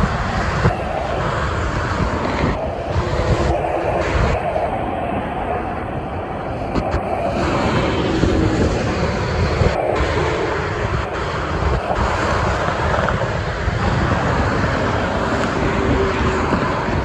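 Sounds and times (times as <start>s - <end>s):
expressway traffic roar: 0.0s - 17.0s
wind buffeting microphone: 0.0s - 17.0s.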